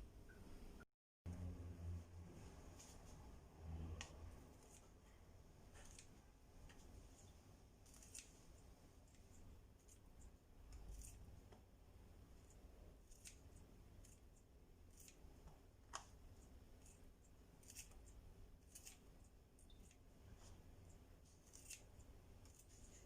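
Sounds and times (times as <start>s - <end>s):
faint clicks and snips: 4.0s - 11.7s.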